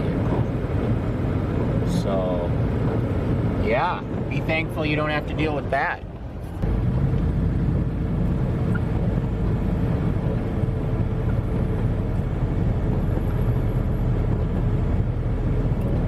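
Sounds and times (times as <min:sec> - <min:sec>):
car engine hum from cabin: 0:00.0 - 0:16.0.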